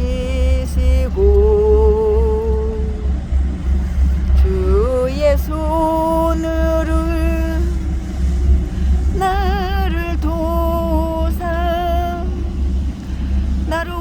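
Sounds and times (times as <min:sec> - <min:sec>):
woman singing with vibrato: 0:00.0 - 0:03.2, 0:04.2 - 0:08.0, 0:09.1 - 0:12.6, 0:13.6 - 0:14.0
boat engine rumble: 0:00.0 - 0:14.0.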